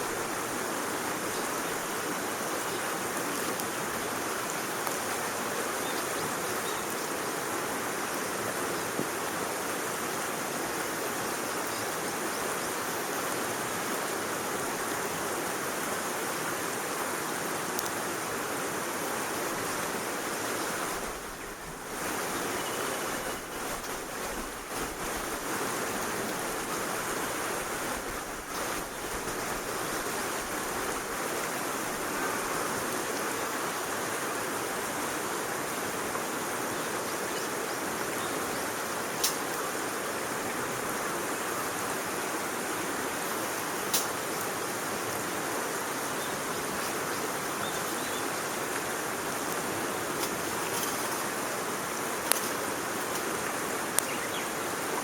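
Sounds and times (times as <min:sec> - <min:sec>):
fire crackles: 0:19.5 - 0:32.0, 0:43.8 - 0:46.0, 0:46.6 - 0:54.1.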